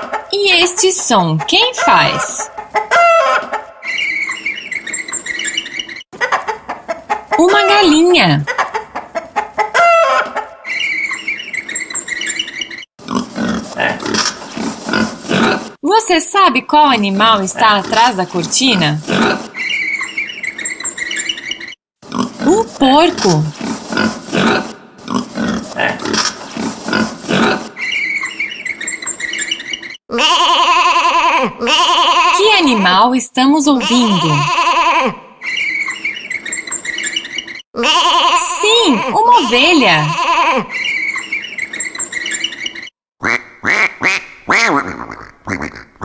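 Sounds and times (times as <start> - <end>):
pig grunting: 13.0 - 15.8, 18.9 - 19.5, 22.0 - 27.7.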